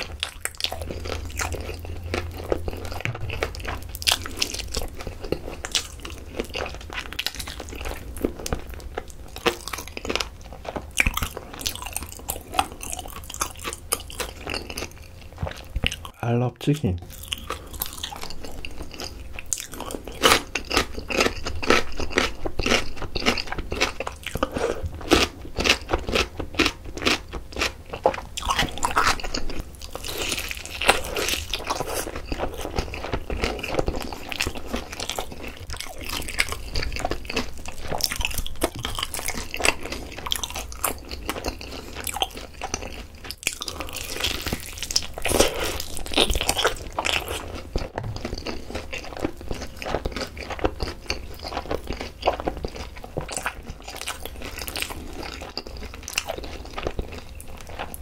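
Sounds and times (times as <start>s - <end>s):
wet chewing: 0.0s - 16.2s, 17.0s - 58.0s
crunching fried chicken: 0.0s - 58.0s.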